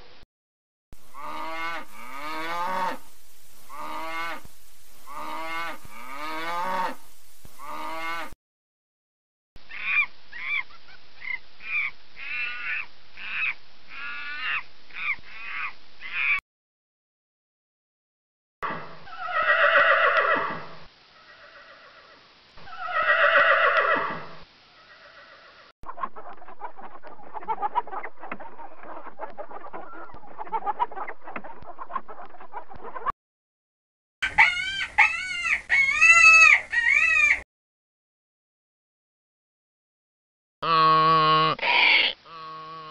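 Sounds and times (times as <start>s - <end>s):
monkey calling: 9.7s - 16.4s, 34.2s - 37.4s, 41.5s - 42.9s
hens clucking: 34.2s - 37.4s
rooster crowing: 34.2s - 37.4s.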